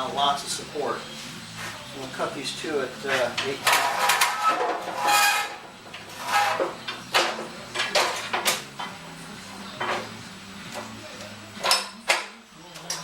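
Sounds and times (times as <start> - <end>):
metal pipe clanking and scraping: 3.0 - 9.0, 9.8 - 10.9.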